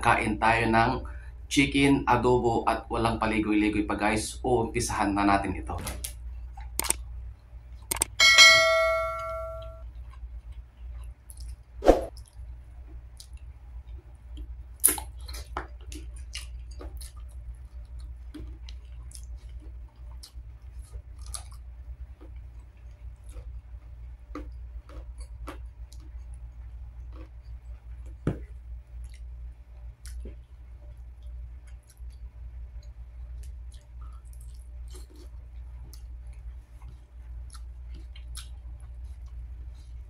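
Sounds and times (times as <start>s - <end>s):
bell-like chime: 8.2s - 9.8s
man chewing wetly: 9.8s - 40.0s.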